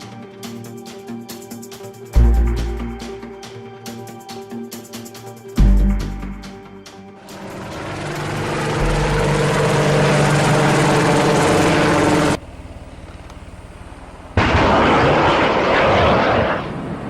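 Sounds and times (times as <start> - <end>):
helicopter rotor and turbine: 7.2 - 17.0
rapidly pulsing rotor: 7.2 - 17.0.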